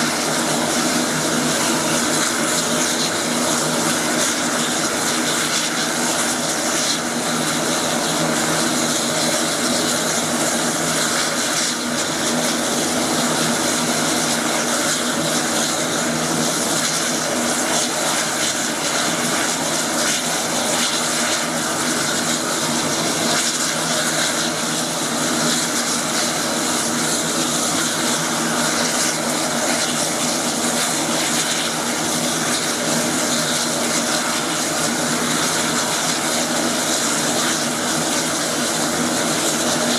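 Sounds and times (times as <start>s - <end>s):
turboprop plane engine droning: 0.0s - 39.9s.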